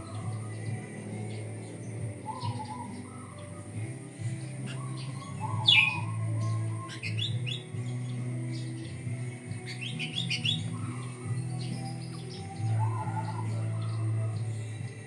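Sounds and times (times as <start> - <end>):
bulbul chirping: 0.0 - 8.0
steady low hum: 0.0 - 12.6.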